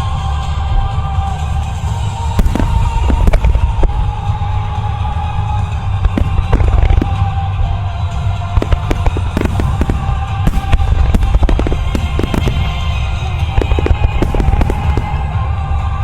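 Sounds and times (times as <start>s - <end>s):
fireworks bangs and crackling: 0.0s - 16.0s
low rumble: 0.0s - 16.0s
music: 0.0s - 16.0s.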